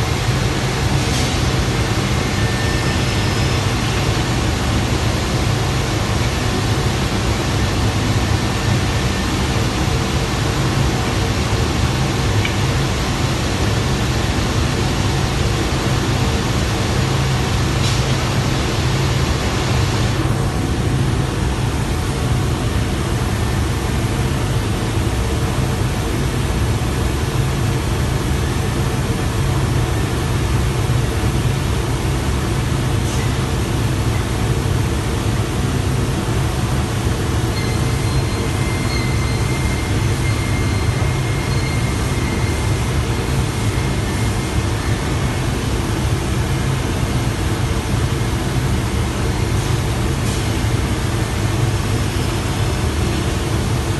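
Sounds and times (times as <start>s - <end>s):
faint high whine: 37.5s - 45.2s.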